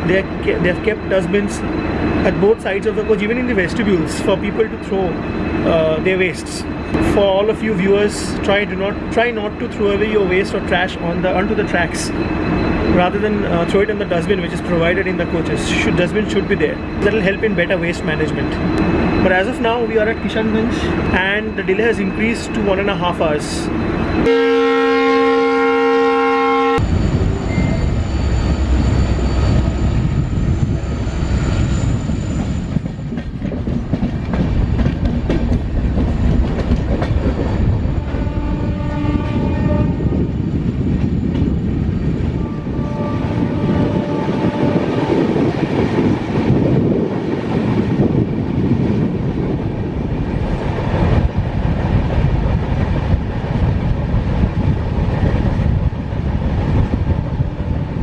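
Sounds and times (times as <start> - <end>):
train rumbling on track: 0.0 - 58.0
train horn chord: 24.2 - 26.8, 38.0 - 40.0, 42.4 - 44.9.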